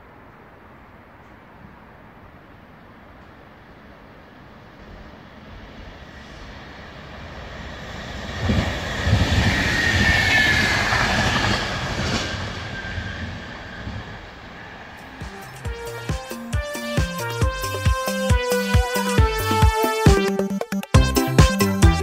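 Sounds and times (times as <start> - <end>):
high train whine: 0.0 - 22.0
train wheels on rails: 3.1 - 18.1.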